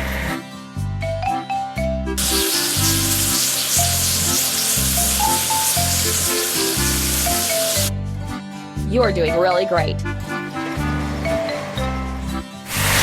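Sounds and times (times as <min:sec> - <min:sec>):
upbeat background music: 0:00.0 - 0:13.0
water spray hissing: 0:02.2 - 0:07.9, 0:12.7 - 0:13.0.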